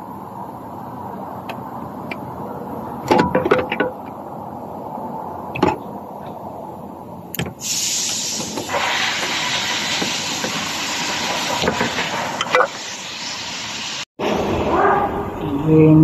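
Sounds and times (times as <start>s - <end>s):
loud steady hiss: 7.5s - 14.1s.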